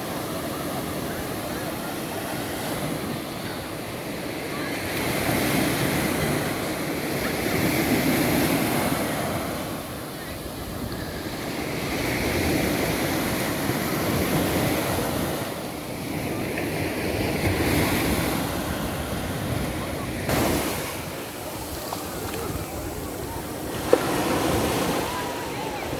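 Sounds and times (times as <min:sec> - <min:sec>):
waves breaking on shore: 0:00.0 - 0:25.9
wind buffeting microphone: 0:17.0 - 0:25.9.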